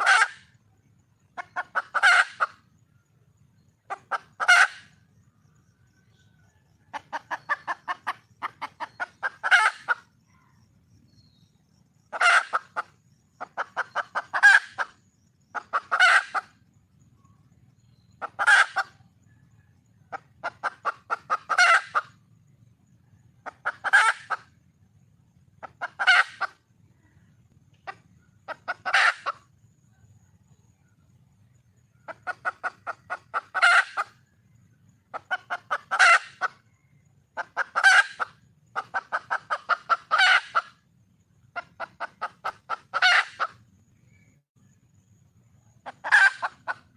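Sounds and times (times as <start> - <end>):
hen clucking and squawking: 0.0 - 0.6, 1.3 - 2.6, 3.8 - 5.0, 6.8 - 10.2, 12.1 - 16.7, 18.2 - 19.4, 20.0 - 22.2, 23.4 - 24.6, 25.5 - 26.6, 27.8 - 29.5, 32.0 - 34.3, 35.0 - 40.8, 41.5 - 43.6, 45.8 - 46.9.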